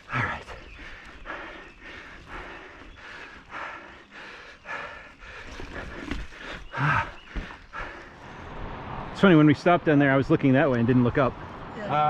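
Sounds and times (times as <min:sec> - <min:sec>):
person breathing hard: 0:00.0 - 0:08.4.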